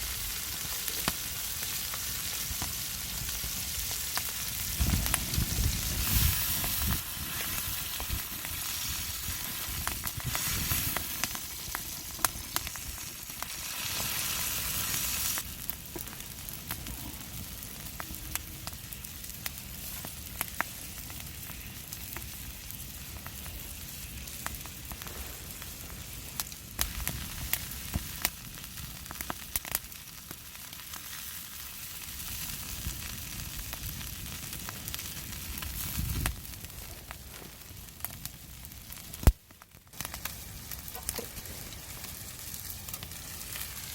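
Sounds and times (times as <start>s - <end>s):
oysters sizzling in a pan: 0.0s - 43.9s
sharp pops and crackles: 0.2s - 43.9s.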